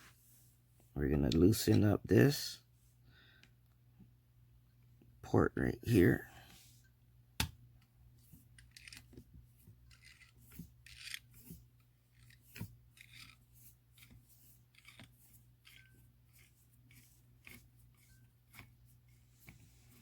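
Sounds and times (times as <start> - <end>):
screwdriver scraping metal: 8.5 - 9.2, 9.9 - 18.8.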